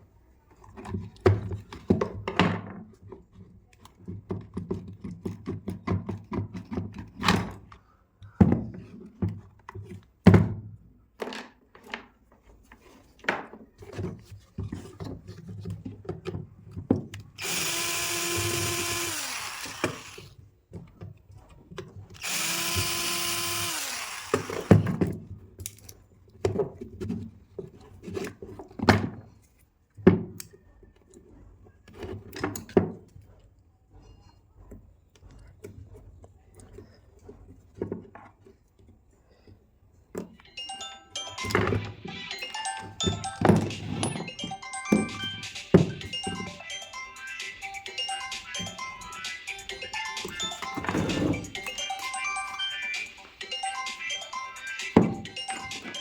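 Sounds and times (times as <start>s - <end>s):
power tool motor running: 17.4s - 20.3s, 22.2s - 25.0s.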